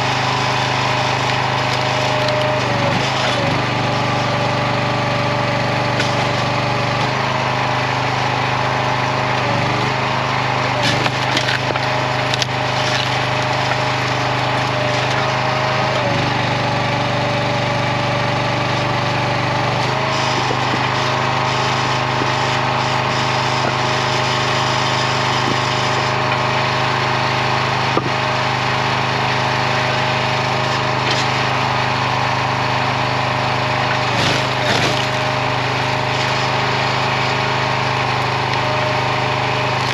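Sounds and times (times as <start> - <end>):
small gas engine running: 0.0 - 39.9
wood cracking: 0.1 - 4.2, 9.2 - 16.7, 18.6 - 28.4, 33.4 - 39.9.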